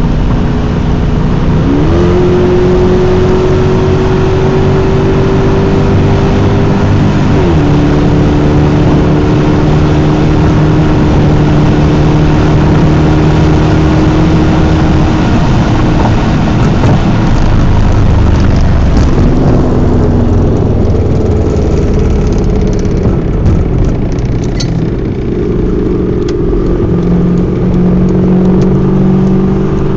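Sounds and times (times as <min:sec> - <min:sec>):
car engine running loudly: 0:00.0 - 0:29.9
rough rushing noise: 0:12.9 - 0:29.9.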